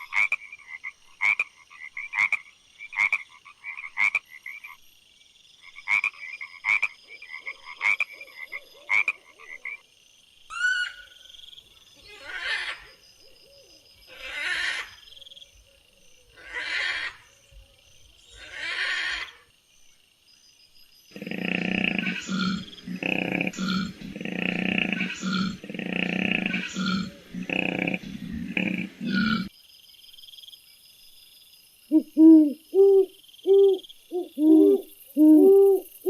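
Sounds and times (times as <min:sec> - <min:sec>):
raspy animal calls: 0:12.0 - 0:13.0, 0:14.1 - 0:15.0, 0:16.3 - 0:17.2, 0:18.3 - 0:19.4, 0:21.1 - 0:29.5
deep animal call: 0:21.1 - 0:29.5.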